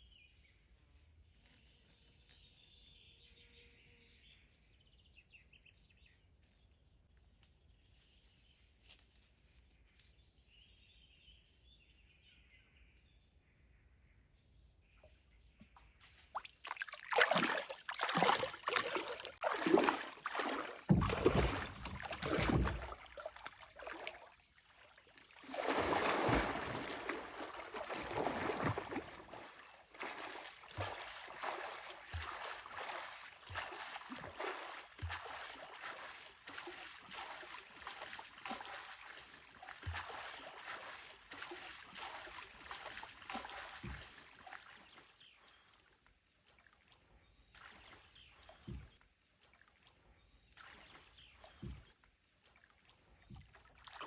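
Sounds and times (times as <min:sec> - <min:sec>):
water splashing and sloshing: 0:15.0 - 0:54.0.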